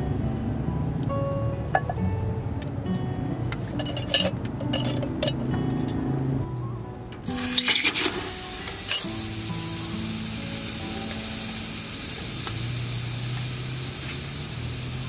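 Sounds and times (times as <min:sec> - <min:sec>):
background music with held notes: 0:00.0 - 0:15.0
food sizzling in a pan: 0:07.2 - 0:15.0.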